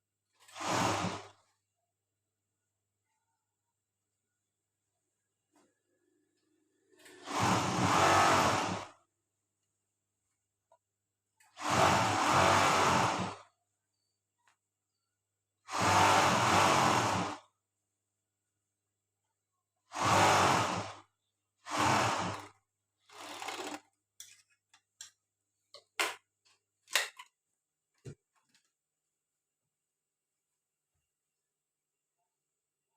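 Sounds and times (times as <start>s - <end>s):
overlock sewing machine running: 0.4s - 1.4s, 7.0s - 9.0s, 11.6s - 13.4s, 15.7s - 17.4s, 19.9s - 21.0s, 21.6s - 23.9s.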